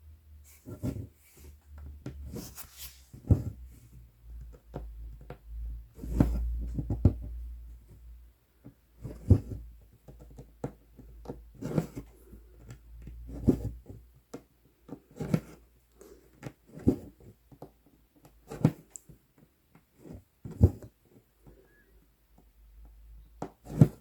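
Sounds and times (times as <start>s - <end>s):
needle pulling thread through cloth: 0.4s - 3.9s, 5.9s - 6.8s
small clicks and scratches: 0.5s - 24.0s.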